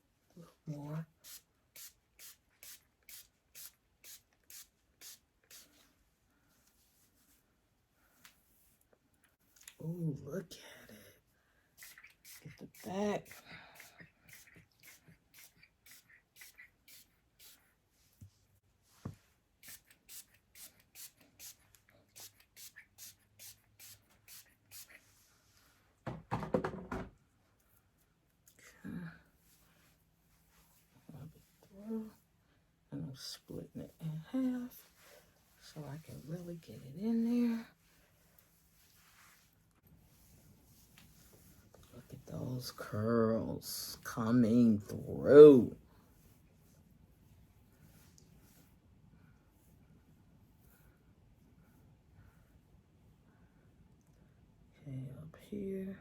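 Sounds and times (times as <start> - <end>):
spray bottle squirting water: 1.2 - 5.7, 11.8 - 17.6, 19.6 - 25.0
spray bottle squirting: 11.8 - 17.6
hands rustling hair: 37.8 - 41.9.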